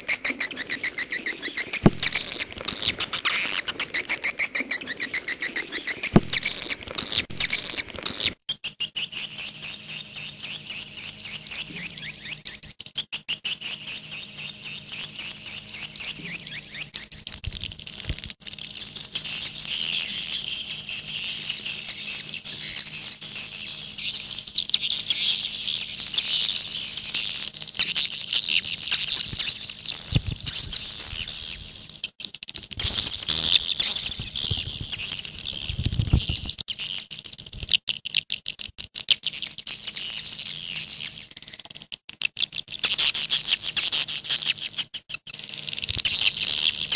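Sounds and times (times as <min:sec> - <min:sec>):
swiftlets twittering: 0:00.0 - 0:08.3, 0:32.7 - 0:36.9.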